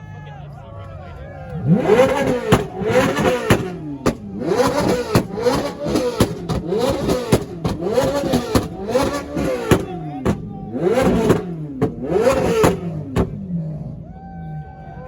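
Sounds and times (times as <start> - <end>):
car engine revving: 0.8 - 14.6
sharp exhaust cracks: 1.7 - 13.6.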